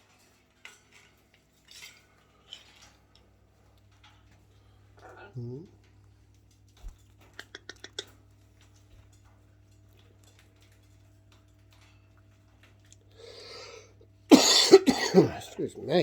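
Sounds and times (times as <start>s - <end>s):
person coughing: 14.3s - 15.6s.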